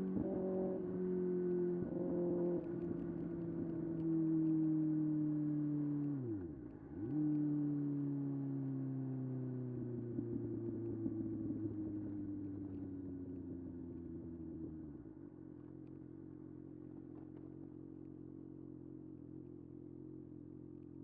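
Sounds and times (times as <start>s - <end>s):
motorcycle engine slowing to idle: 9.8s - 21.0s.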